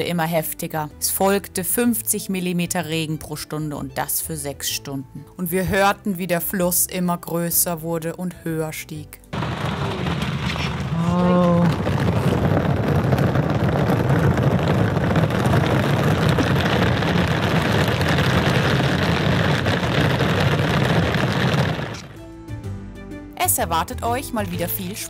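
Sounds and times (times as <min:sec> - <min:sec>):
torrential rain: 0:09.4 - 0:22.2.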